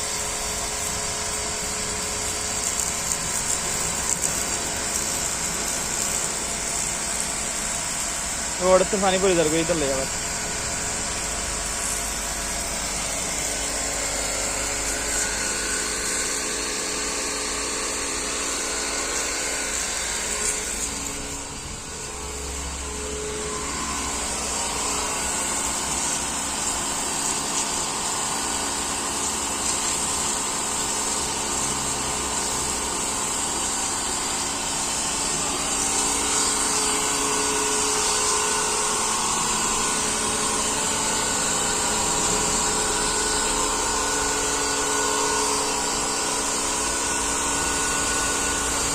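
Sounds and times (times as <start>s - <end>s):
diesel engine running: 19.9s - 27.1s.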